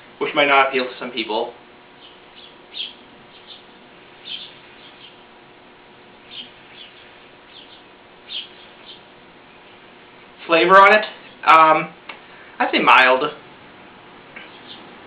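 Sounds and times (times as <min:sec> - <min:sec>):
faint steady hum: 0:00.0 - 0:15.0
small bird chirping: 0:01.9 - 0:05.3, 0:06.2 - 0:09.9, 0:14.4 - 0:15.0.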